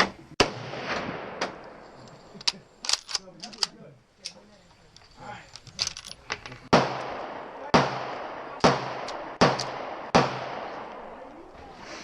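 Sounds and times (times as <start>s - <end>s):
gunshots cracking: 0.0s - 1.8s, 6.7s - 11.0s.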